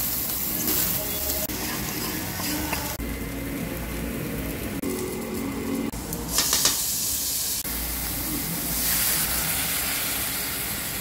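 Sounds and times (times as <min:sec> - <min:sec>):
onions sizzling in frying pan: 0:00.0 - 0:11.0.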